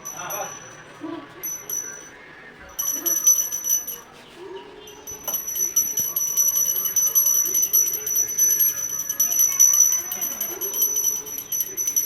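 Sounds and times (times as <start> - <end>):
small bells jingling: 0.0 - 12.0.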